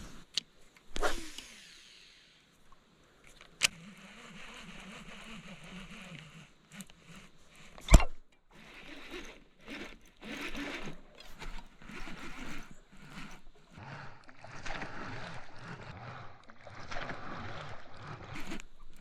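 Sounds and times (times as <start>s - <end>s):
reel click: 0.0s - 19.0s
fishing reel whirring: 1.0s - 2.4s, 3.3s - 19.0s
rustling and bumping of gear: 3.2s - 15.9s, 16.8s - 19.0s.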